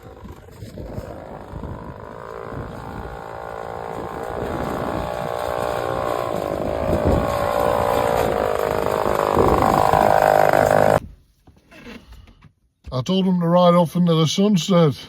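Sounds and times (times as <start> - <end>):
small motorbike engine running: 0.0 - 11.0.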